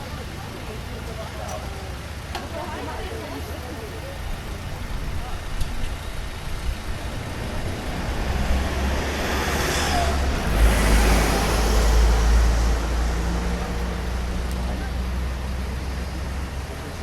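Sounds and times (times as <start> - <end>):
low traffic rumble: 0.0 - 17.0
vehicle passing by: 6.9 - 16.6.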